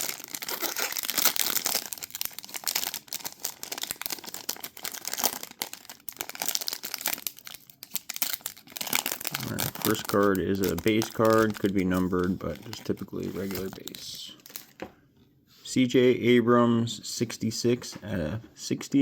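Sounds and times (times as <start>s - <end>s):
plastic wrapper crinkling and tearing: 0.0s - 14.8s.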